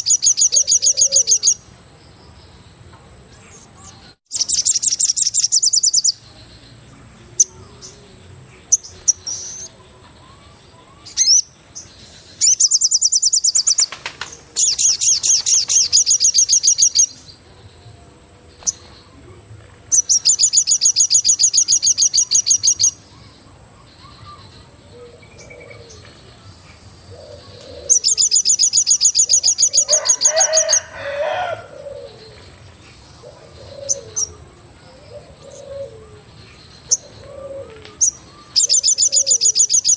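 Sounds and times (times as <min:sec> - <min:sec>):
bird high rapid trill: 0:00.0 - 0:01.7, 0:12.3 - 0:17.2, 0:19.9 - 0:24.5, 0:27.7 - 0:32.0, 0:38.0 - 0:39.9
lower rich bird call: 0:07.4 - 0:39.9.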